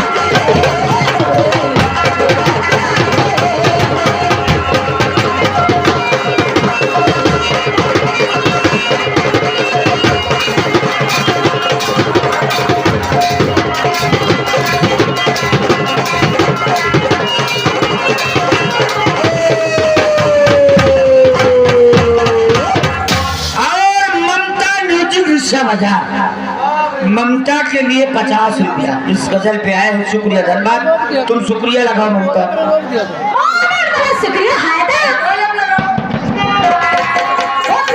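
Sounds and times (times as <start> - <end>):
held melody line: 0.0 - 23.5
hand drums playing fast rhythm: 0.0 - 23.7, 34.0 - 37.9.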